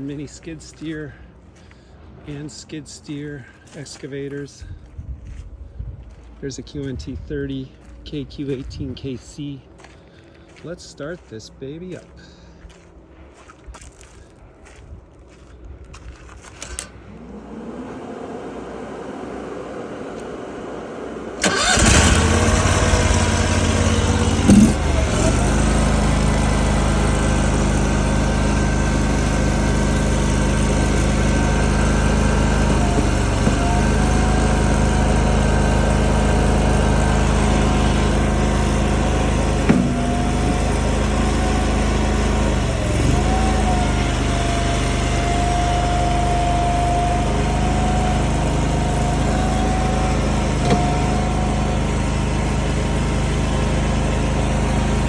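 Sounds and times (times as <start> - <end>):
small engine starting and running: 16.4 - 55.0.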